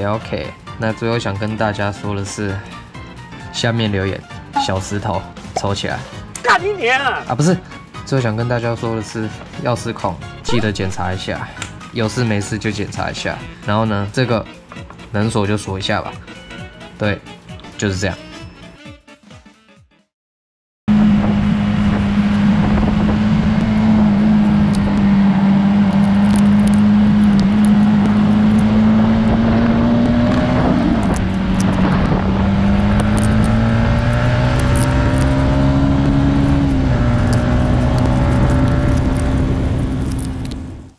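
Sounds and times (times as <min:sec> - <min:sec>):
motorcycle engine running: 0:20.9 - 0:40.9.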